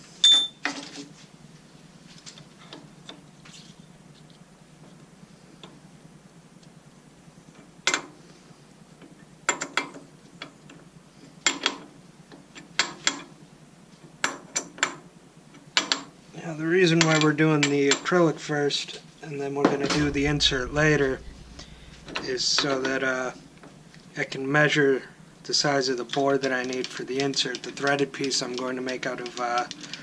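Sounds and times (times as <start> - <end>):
faint steady hum: 18.1 - 28.9.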